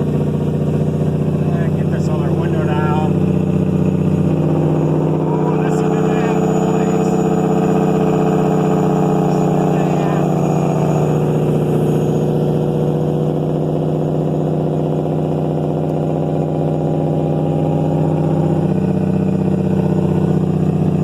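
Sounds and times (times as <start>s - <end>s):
diesel truck engine rumbling: 0.0s - 21.0s.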